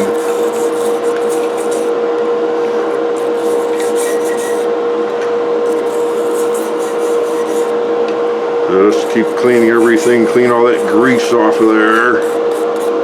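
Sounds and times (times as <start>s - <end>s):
brush scrubbing metal parts: 0.0s - 1.9s, 3.2s - 4.7s, 5.7s - 7.8s, 8.9s - 13.0s
steady hum: 0.0s - 13.0s.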